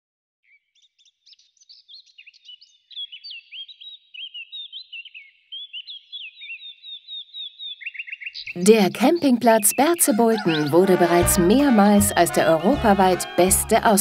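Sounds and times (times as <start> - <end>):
birds chirping and warbling: 0.4 - 11.2.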